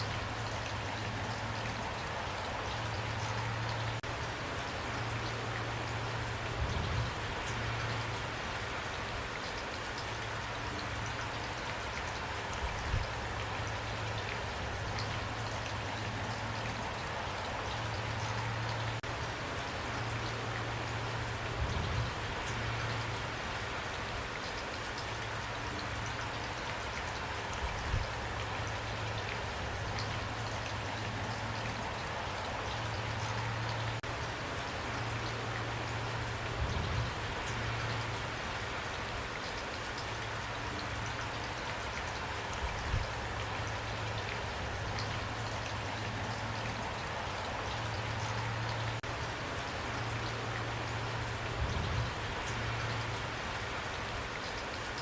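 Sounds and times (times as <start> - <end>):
steady rain patter: 0.0 - 55.0.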